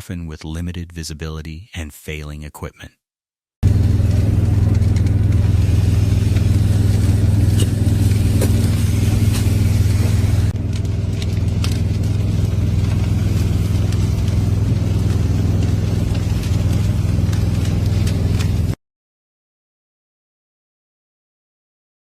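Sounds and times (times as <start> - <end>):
vehicle engine running: 3.6 - 18.8.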